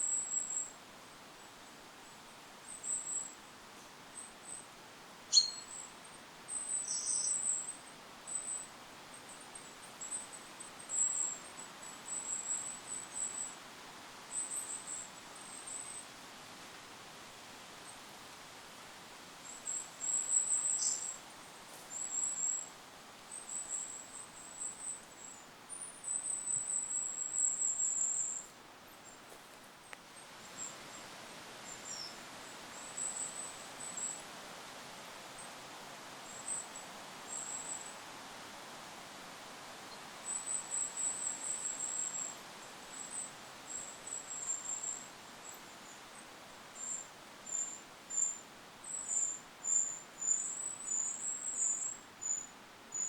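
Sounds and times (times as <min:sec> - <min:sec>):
small bird singing high notes: 0:05.3 - 0:05.7.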